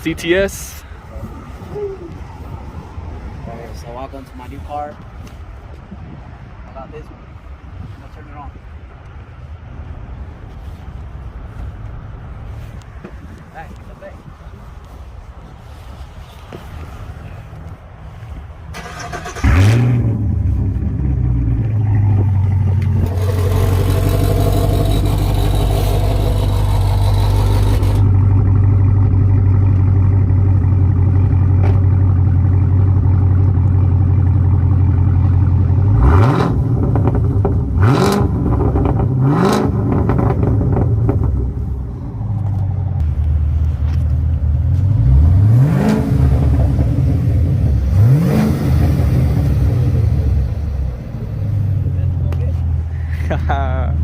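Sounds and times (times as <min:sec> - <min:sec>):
car engine starting and revving: 0:18.7 - 0:52.2.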